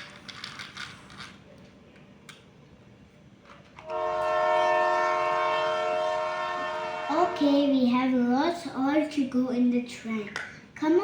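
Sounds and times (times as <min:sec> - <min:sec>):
train horn chord: 0:03.8 - 0:07.9.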